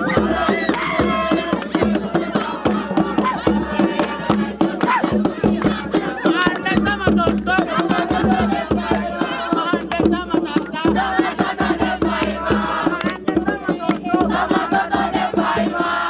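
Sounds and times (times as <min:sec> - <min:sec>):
crowd noise: 0:00.0 - 0:07.2
group singing and chanting: 0:00.0 - 0:16.0
rapid percussion: 0:00.0 - 0:16.0.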